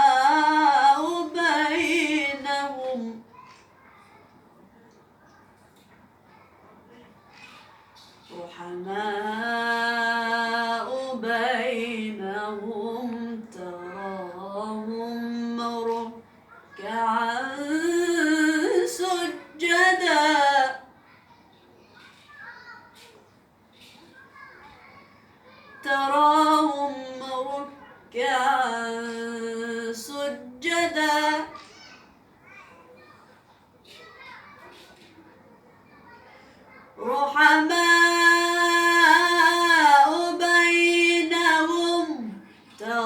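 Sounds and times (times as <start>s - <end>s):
woman chanting recitation: 0.0s - 3.3s, 8.2s - 21.0s, 25.8s - 31.6s, 37.0s - 43.0s.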